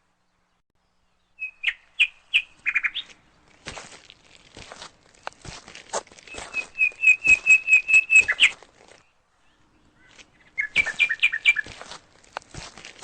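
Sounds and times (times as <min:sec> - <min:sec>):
bird whistling song: 0:01.2 - 0:03.1, 0:06.3 - 0:08.6, 0:10.4 - 0:11.8
crunching footsteps: 0:02.4 - 0:13.0.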